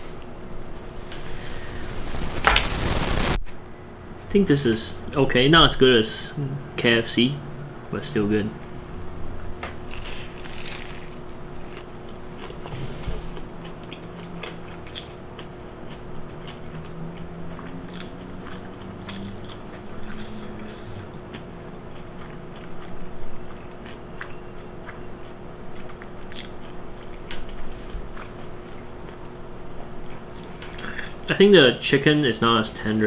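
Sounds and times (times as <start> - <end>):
faint steady hum: 0.0 - 33.0
crunching fried coating: 1.5 - 3.4, 9.8 - 12.6
biting and chewing: 9.8 - 12.7, 13.3 - 30.9.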